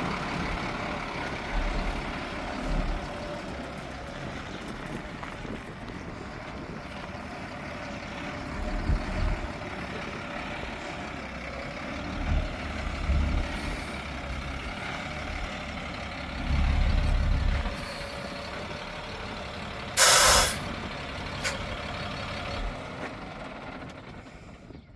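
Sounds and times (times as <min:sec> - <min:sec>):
truck engine idling: 0:00.0 - 0:24.9
air brake hiss: 0:20.0 - 0:20.7, 0:21.4 - 0:21.6.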